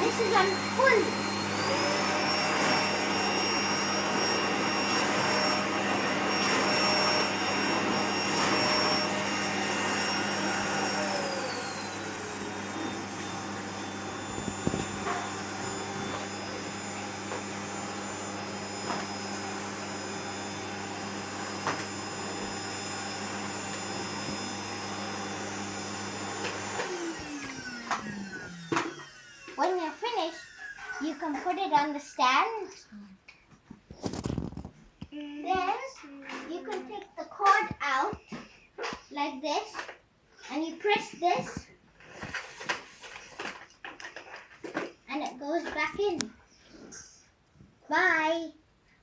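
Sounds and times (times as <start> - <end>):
vacuum cleaner motor whining: 0.0 - 31.9.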